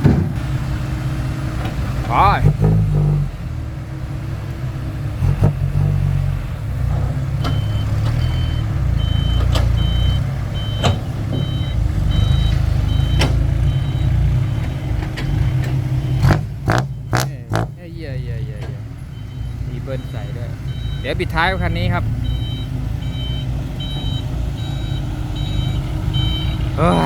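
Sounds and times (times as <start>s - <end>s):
sharp knocks: 0.0s - 0.4s
diesel truck engine rumbling: 0.0s - 27.0s
reversing alarm beeping: 7.4s - 17.3s, 18.6s - 27.0s.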